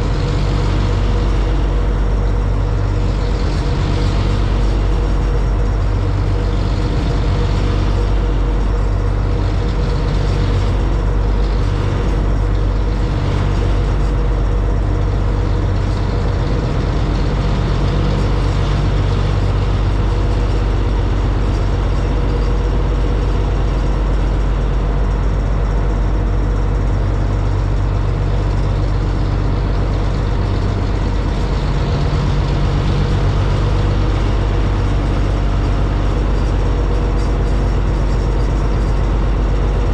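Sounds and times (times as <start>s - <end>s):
boat engines droning: 0.0s - 39.9s
rushing noise: 27.7s - 39.9s.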